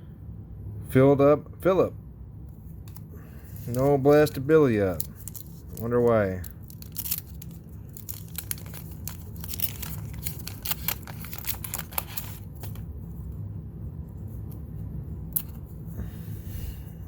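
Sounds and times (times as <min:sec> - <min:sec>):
steady low hum: 0:00.0 - 0:17.0
wax paper wrapper crinkling: 0:02.8 - 0:12.9.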